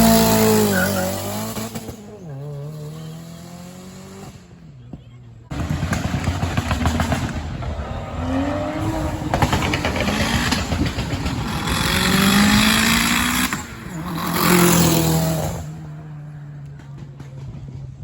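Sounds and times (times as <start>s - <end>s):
car engine revving: 0.0s - 4.8s, 5.5s - 17.5s.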